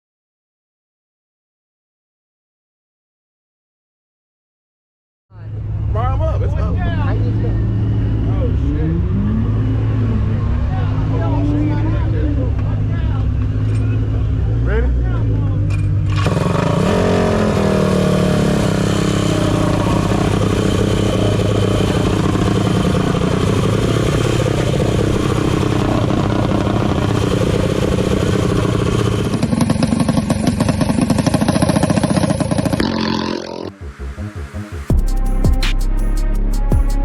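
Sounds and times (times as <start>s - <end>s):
minibike engine revving: 5.6s - 33.7s.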